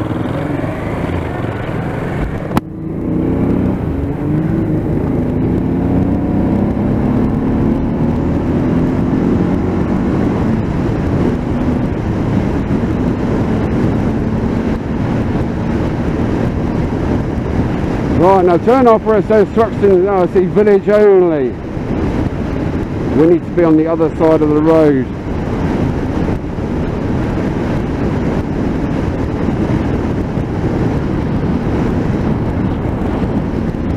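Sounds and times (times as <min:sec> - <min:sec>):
motorcycle engine pulling away: 0:00.0 - 0:10.7
rushing wind noise: 0:00.0 - 0:33.9.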